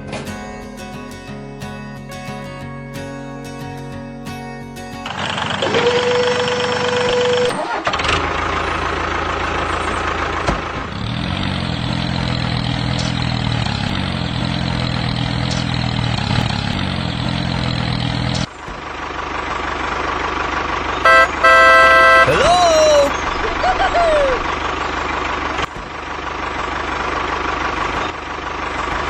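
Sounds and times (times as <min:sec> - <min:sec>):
engine running: 0:03.9 - 0:29.0
short electronic beeps: 0:21.0 - 0:22.4.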